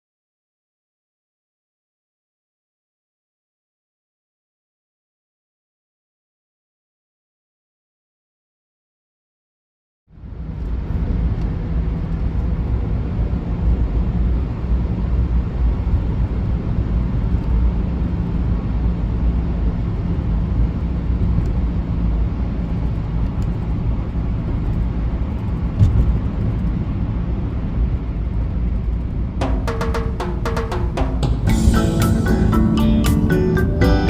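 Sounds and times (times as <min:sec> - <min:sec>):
car driving road noise: 0:10.1 - 0:34.0.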